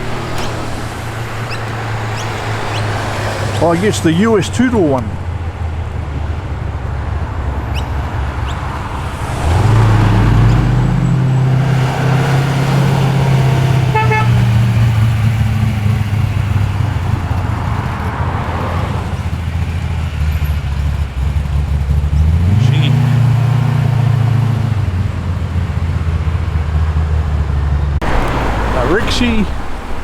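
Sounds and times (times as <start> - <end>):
car engine rumbling: 0.0 - 30.0
car horn toot: 13.2 - 15.0.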